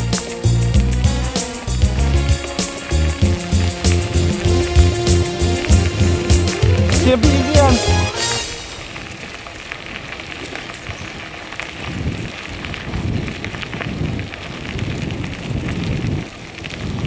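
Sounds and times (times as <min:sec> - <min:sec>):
bicycle tyres on gravel: 0:08.0 - 0:17.0
wind buffeting microphone: 0:09.9 - 0:17.0.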